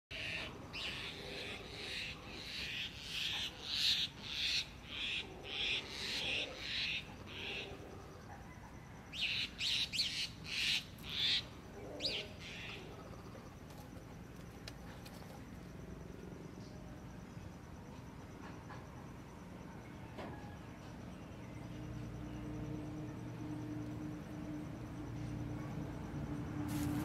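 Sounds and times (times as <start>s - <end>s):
bird calling: 9.1s - 13.4s.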